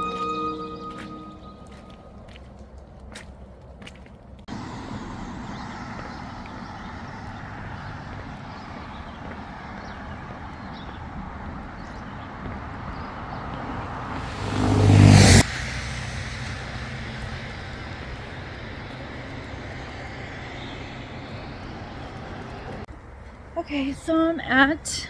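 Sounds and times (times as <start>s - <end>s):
outdoor background noise: 0.0s - 25.0s
vehicle engine passing close: 4.5s - 22.9s.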